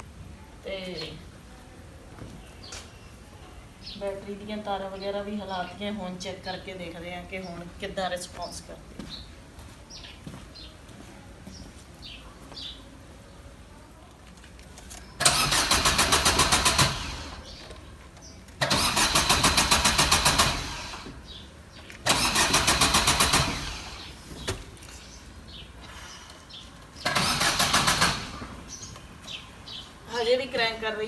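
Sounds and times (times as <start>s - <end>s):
car engine cranking by starter motor: 15.2s - 17.9s, 18.5s - 21.4s, 22.0s - 24.8s, 27.0s - 29.3s.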